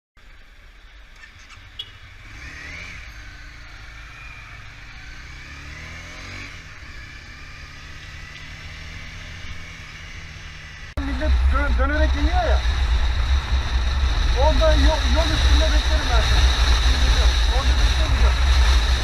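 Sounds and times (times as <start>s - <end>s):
car engine running: 10.9s - 19.0s.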